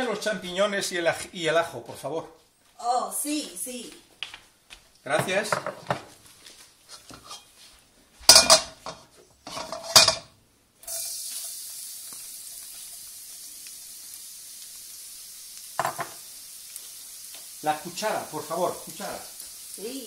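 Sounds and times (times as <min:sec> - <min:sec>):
plate and spoon knocking pan: 0:08.3 - 0:10.3, 0:15.8 - 0:16.2
oil sizzling: 0:08.3 - 0:20.0.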